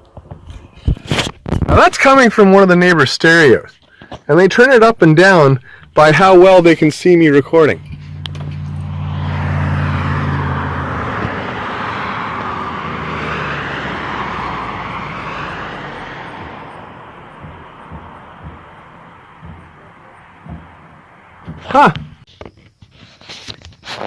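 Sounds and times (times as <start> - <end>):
motor vehicle passing: 7.1 - 22.3.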